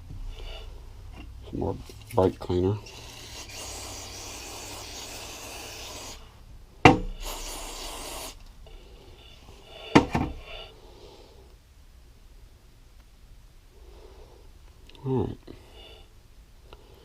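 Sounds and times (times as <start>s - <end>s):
aerosol spray hissing: 2.9s - 6.3s, 7.1s - 8.4s
sharp knock: 6.8s - 7.2s.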